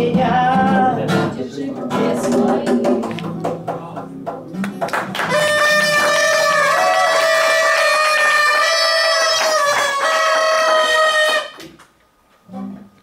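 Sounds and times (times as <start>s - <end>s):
plucked guitar: 0.0s - 7.0s.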